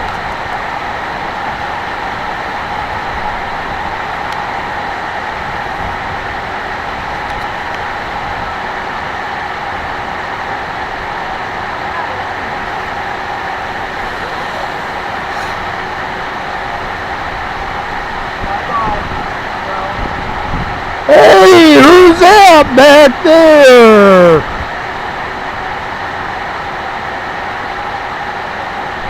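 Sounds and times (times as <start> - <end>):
drone motors and propellers: 12.7 - 18.1.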